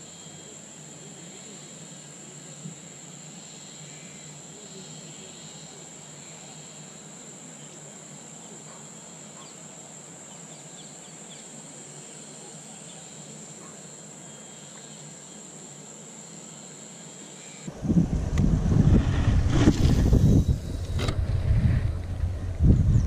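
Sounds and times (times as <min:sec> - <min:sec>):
faint bird chirps: 0:00.0 - 0:01.8, 0:03.4 - 0:17.7
background hiss: 0:00.0 - 0:23.0
insects chirring: 0:00.0 - 0:23.0.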